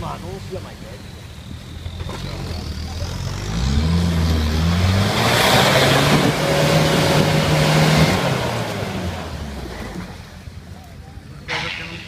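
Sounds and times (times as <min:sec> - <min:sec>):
engine revving hard: 0:02.1 - 0:09.4.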